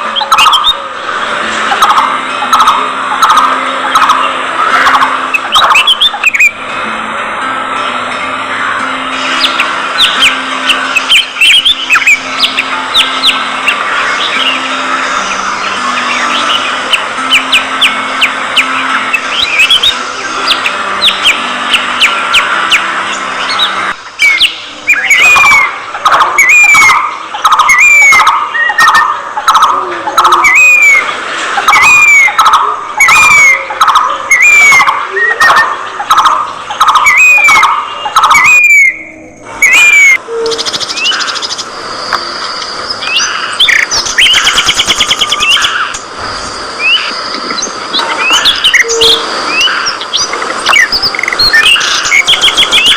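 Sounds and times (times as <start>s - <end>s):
budgerigars chirping and chattering: 0.1s - 0.8s, 1.7s - 6.6s, 8.6s - 39.0s, 39.6s - 41.8s, 42.4s - 46.1s, 46.8s - 52.9s.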